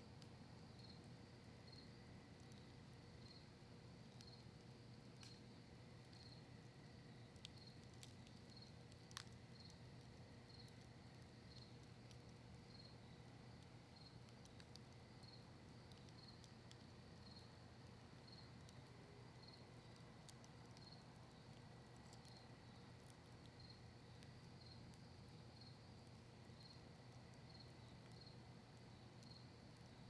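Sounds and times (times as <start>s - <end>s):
campfire crackling: 0.0s - 30.0s
cricket chirping: 1.6s - 3.6s, 6.1s - 6.5s, 12.7s - 13.3s, 18.2s - 30.0s.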